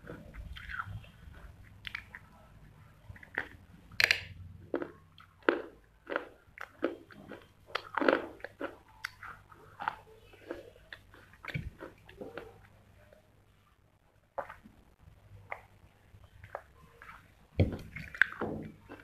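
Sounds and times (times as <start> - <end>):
crunching of chewed clay: 0.0 - 2.5, 3.1 - 12.6, 16.4 - 19.0.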